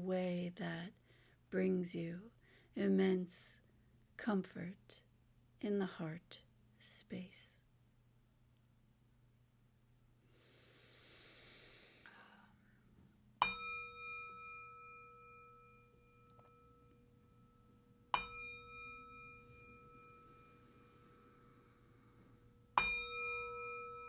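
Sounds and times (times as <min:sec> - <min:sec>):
soft breathy whoosh: 0:10.2 - 0:12.9
metal singing bowl ringing: 0:13.4 - 0:24.0.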